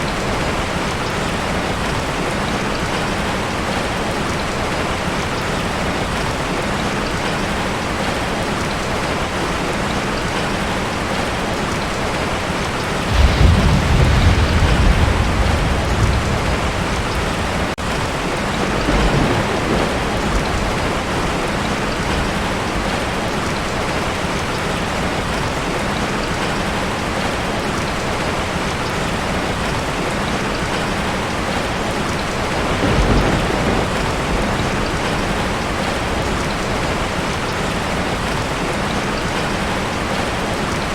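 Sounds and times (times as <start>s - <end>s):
heavy rain on a tin roof: 0.0s - 40.9s
thunder rumbling: 13.0s - 24.3s, 31.3s - 38.7s.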